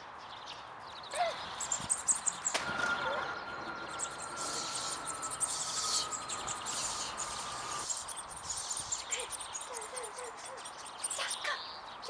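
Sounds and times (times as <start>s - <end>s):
birds chirping and trilling: 0.0s - 12.0s
thin steady high tone: 1.7s - 9.8s.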